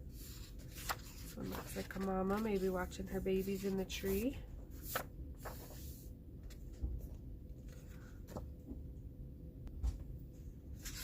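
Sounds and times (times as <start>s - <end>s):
paper pages rustling: 0.1s - 8.6s, 10.8s - 11.0s.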